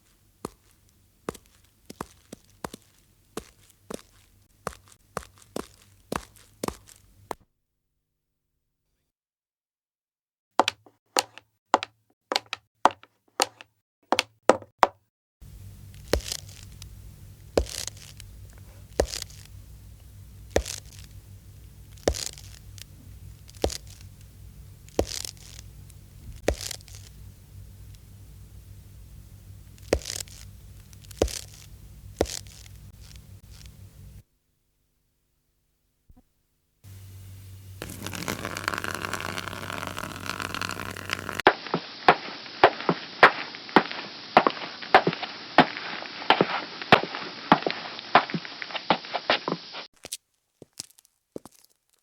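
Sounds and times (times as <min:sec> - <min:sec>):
footsteps on crunchy surface: 0:00.0 - 0:07.4, 0:15.9 - 0:19.5, 0:20.5 - 0:21.2, 0:21.9 - 0:24.1, 0:24.9 - 0:27.2, 0:29.7 - 0:33.8, 0:37.8 - 0:52.0
low hum: 0:18.2 - 0:34.2
hissy noise: 0:36.9 - 0:49.9.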